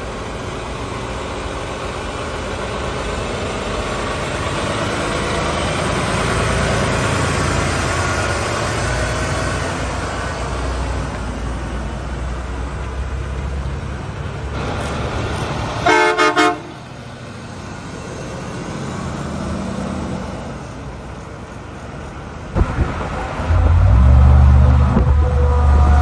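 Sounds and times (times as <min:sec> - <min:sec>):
heavy truck engine running: 0:00.0 - 0:26.0
road noise: 0:00.0 - 0:26.0
vehicle horn toots: 0:15.8 - 0:16.8.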